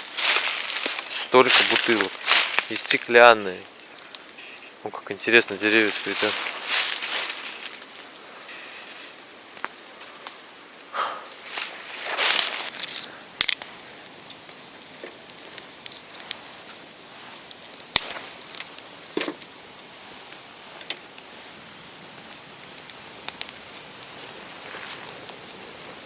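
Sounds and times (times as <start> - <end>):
dry wood crackling and snapping: 0.0 - 26.0
soft steady hiss: 0.0 - 26.0.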